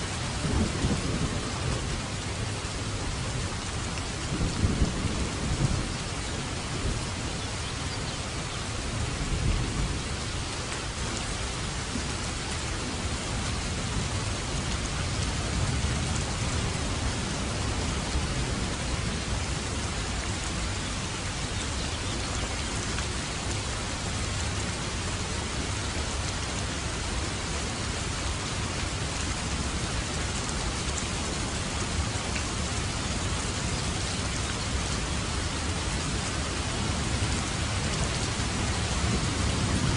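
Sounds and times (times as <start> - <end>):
rain falling steadily: 0.0 - 39.9
low thunder rumbles: 0.1 - 3.5, 4.1 - 7.3, 36.7 - 39.9.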